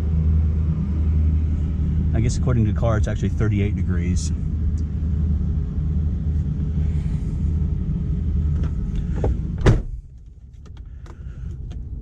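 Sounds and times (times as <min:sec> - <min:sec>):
car engine idling: 0:00.0 - 0:12.0
door shutting thump: 0:08.6 - 0:10.0.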